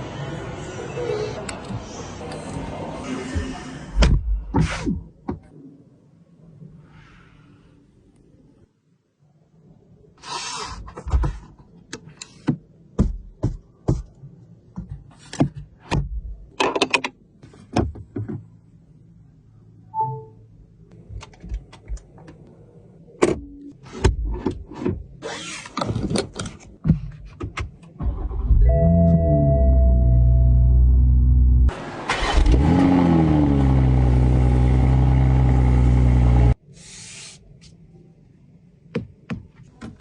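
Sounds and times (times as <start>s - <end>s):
car engine starting and idling: 28.0s - 36.6s
two-tone chime: 28.7s - 30.8s.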